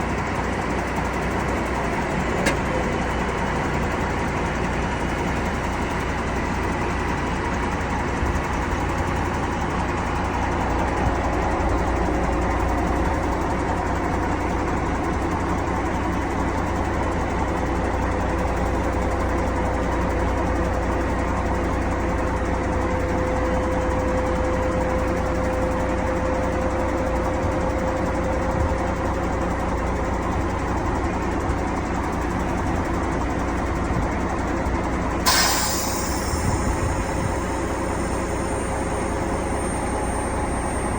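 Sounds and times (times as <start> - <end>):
truck diesel engine running: 0.0 - 40.9
faint whine rising in pitch: 35.3 - 40.9.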